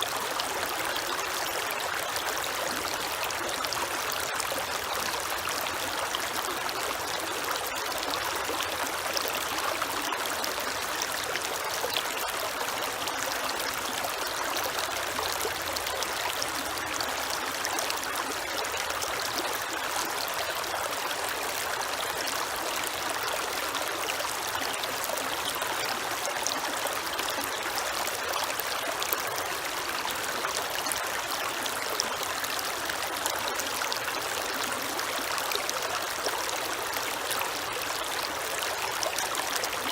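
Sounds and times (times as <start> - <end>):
creek water flowing over stones: 0.0 - 39.9.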